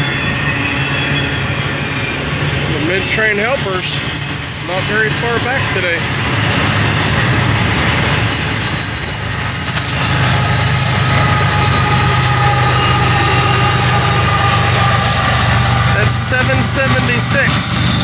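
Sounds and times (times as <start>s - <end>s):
diesel locomotive engine drone: 0.0s - 18.0s
freight train rumbling past: 0.0s - 18.0s.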